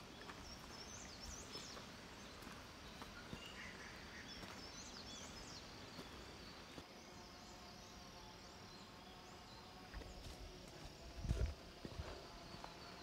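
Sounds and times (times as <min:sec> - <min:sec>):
faint bird chirps: 0:00.0 - 0:06.8.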